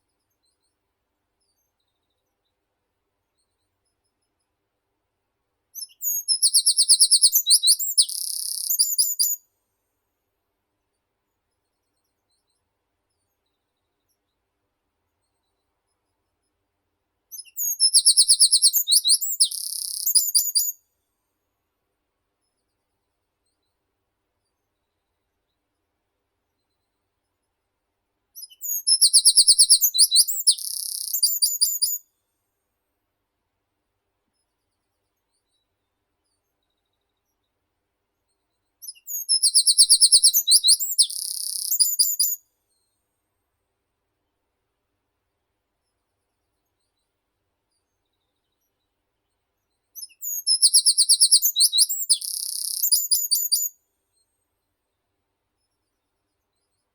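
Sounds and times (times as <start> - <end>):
songbird singing: 5.8 - 9.4, 17.3 - 20.8, 28.4 - 32.0, 38.8 - 42.4, 50.0 - 53.8.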